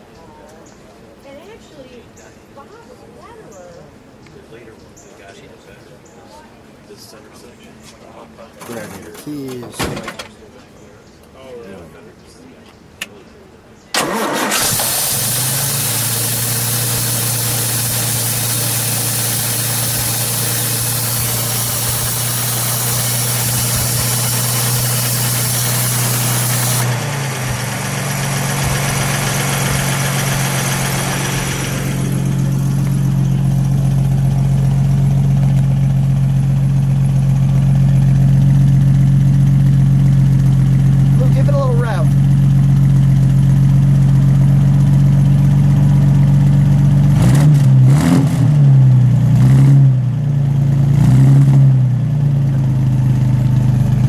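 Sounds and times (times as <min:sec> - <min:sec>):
car engine idling: 0:14.0 - 0:47.2, 0:51.9 - 0:54.0.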